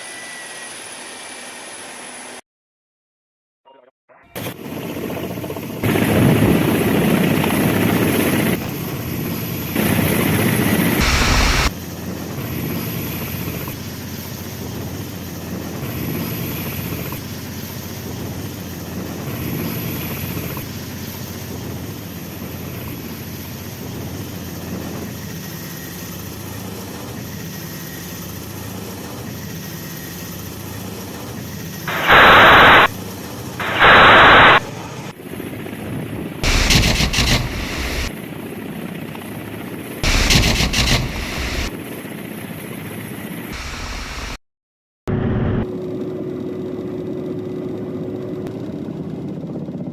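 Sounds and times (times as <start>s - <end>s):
helicopter engine and rotor: 0.0s - 2.4s, 4.3s - 44.4s, 45.6s - 49.9s
loud bursts: 10.9s - 11.7s, 31.9s - 32.9s, 33.6s - 34.8s, 36.4s - 38.1s, 40.0s - 41.7s.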